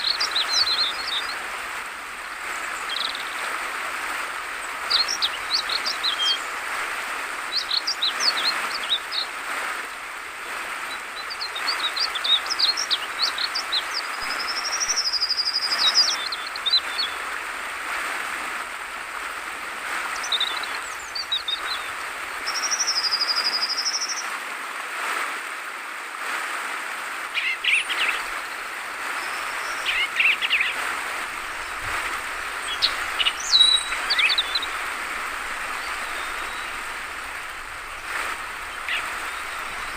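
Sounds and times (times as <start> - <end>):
flowing water rushing: 0.0 - 39.9
bird singing bubbling notes: 29.2 - 39.9.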